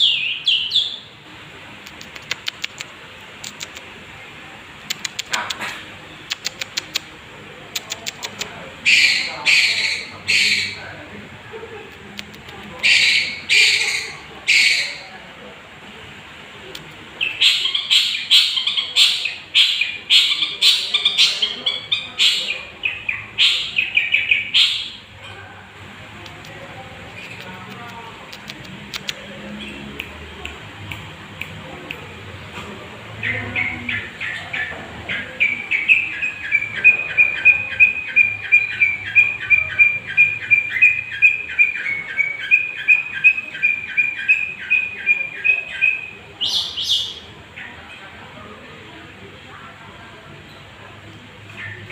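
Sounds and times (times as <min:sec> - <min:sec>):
shrike harsh chattering song: 0:04.8 - 0:11.1, 0:11.8 - 0:15.2, 0:16.8 - 0:25.2, 0:33.0 - 0:47.9.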